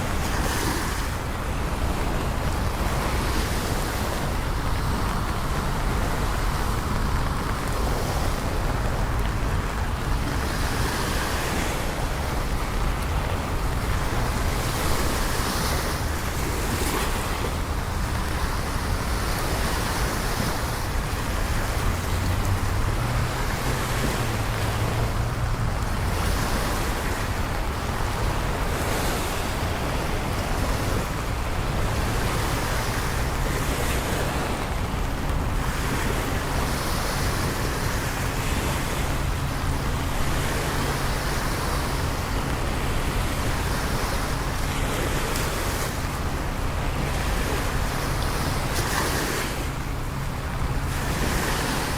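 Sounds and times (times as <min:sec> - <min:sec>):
steady rain: 0:00.0 - 0:51.9
wet city traffic: 0:00.0 - 0:51.9
low engine rumble: 0:11.6 - 0:51.9.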